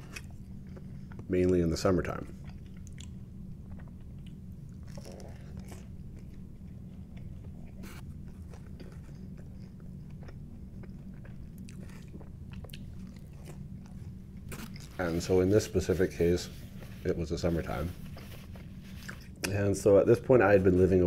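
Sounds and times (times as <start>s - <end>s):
chewing pizza crust: 0.0s - 15.9s
low hum: 0.0s - 21.0s.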